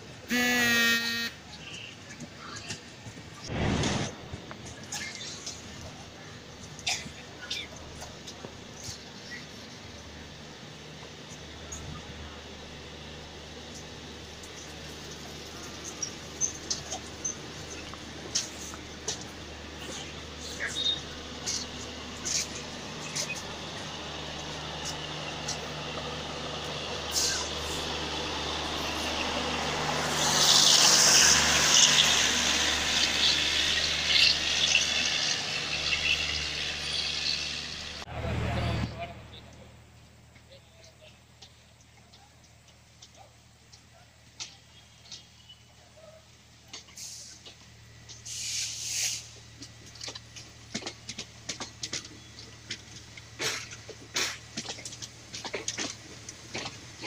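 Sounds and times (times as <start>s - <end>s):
train wheels rushing on rail: 1.3s - 38.0s, 46.5s - 57.0s
loud hissing rush: 8.6s - 38.7s, 48.1s - 49.4s
low rumble of coaches: 38.0s - 48.3s
loud burst of hiss: 48.2s - 49.4s
clicks over rail joints: 49.6s - 57.0s.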